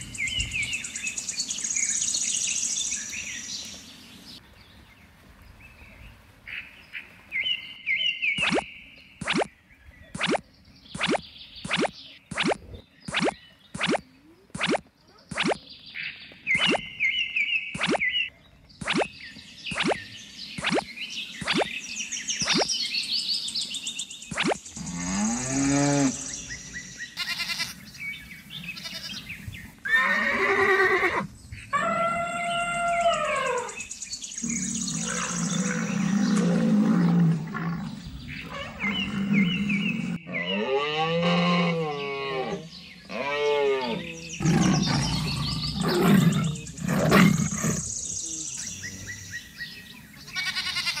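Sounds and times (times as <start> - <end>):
animal calls rising and falling: 8.4 - 9.5, 10.2 - 10.4, 11.0 - 15.6, 16.6 - 16.8, 17.8 - 18.1, 18.8 - 19.1, 19.7 - 20.0, 20.6 - 21.7, 22.4 - 22.7, 24.3 - 24.7.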